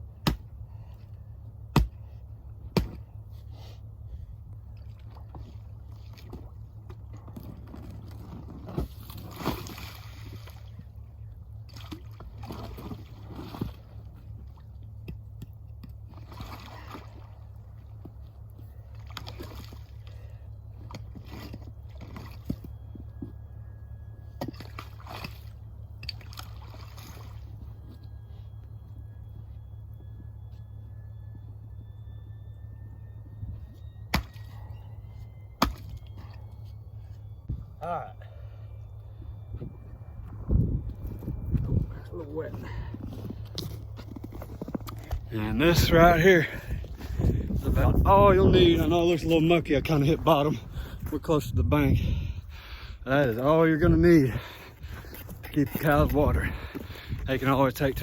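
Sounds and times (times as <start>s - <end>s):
water sloshing and splashing: 4.7s - 23.2s, 24.3s - 28.4s
tool striking ice: 34.1s - 34.5s, 35.6s - 36.0s.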